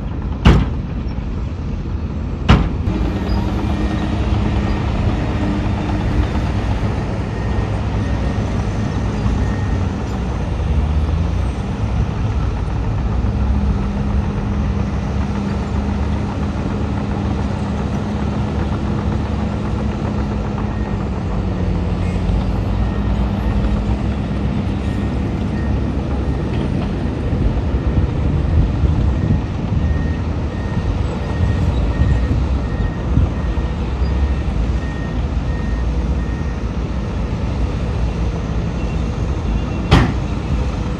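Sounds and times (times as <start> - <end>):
heavy diesel machinery running: 0.0 - 40.9
reversing alarm beeping: 2.8 - 10.1, 27.8 - 36.7.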